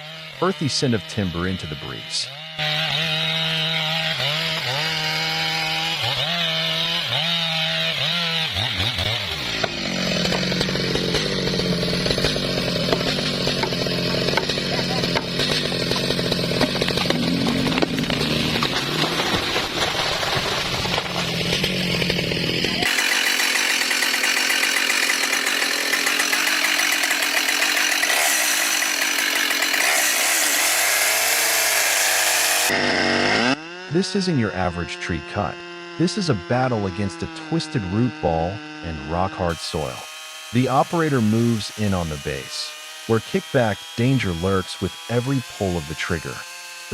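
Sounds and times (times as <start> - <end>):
chainsaw revving and cutting wood: 0.0 - 46.9
thin high buzzing saw: 22.0 - 46.9.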